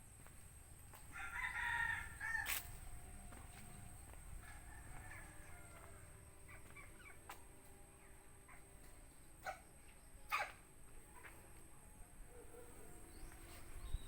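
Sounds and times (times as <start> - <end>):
rooster crowing: 1.1 - 6.2.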